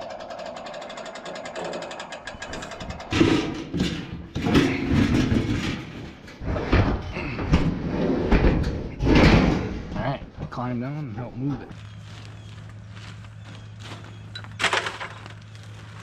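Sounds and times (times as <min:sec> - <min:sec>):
loud clattering and thumps: 0:00.5 - 0:10.0.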